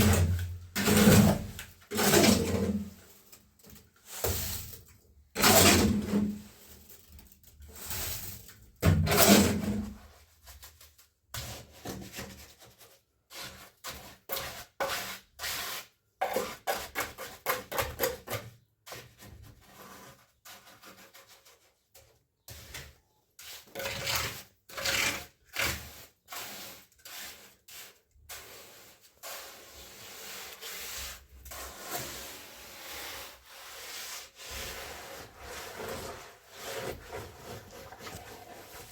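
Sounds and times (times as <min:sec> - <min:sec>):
hand tool scraping: 0:00.0 - 0:02.9, 0:23.4 - 0:38.9.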